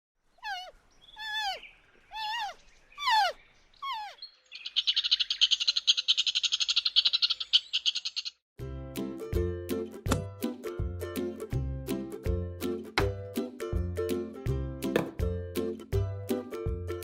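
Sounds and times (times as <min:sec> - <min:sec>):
animal calls rising and falling: 0:00.4 - 0:08.3.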